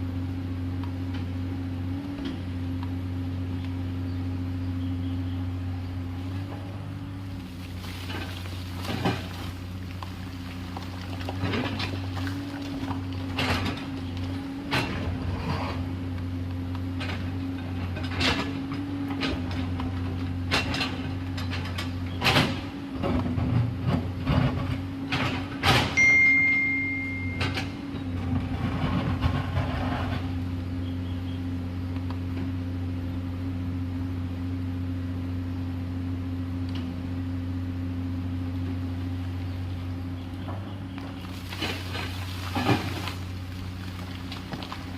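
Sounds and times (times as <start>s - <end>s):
excavator diesel engine running: 0.0s - 44.9s
steady high tone: 26.0s - 27.7s.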